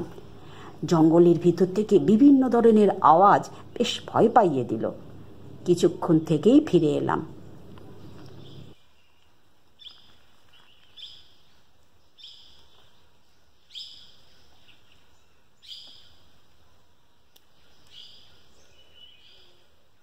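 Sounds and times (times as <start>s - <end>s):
faint forest hiss: 0.0s - 0.9s, 7.5s - 20.0s.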